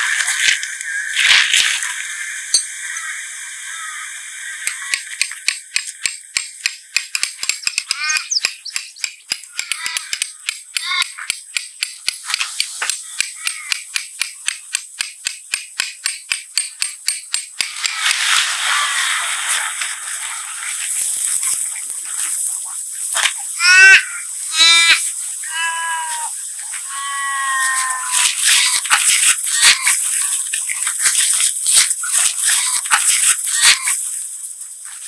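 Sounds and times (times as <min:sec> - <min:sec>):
rapid light clicking: 0:04.7 - 0:18.0.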